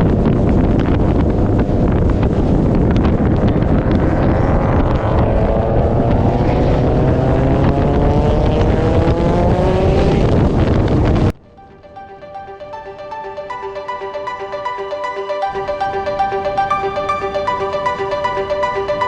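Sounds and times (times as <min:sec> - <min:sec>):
wind and road noise: 0:00.0 - 0:19.0
car engine accelerating: 0:02.5 - 0:11.3
quiet music: 0:11.4 - 0:19.0.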